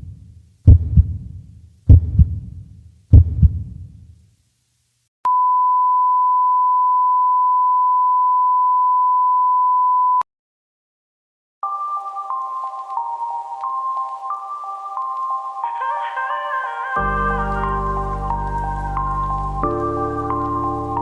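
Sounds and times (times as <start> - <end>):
deep thuds: 0.0 - 3.9
steady pure beep tone: 5.3 - 10.2.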